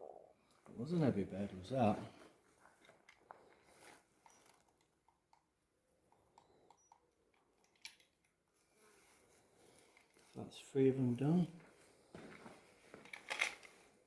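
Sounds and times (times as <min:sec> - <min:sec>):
soft handling rustles: 0:01.4 - 0:04.9, 0:08.4 - 0:14.0.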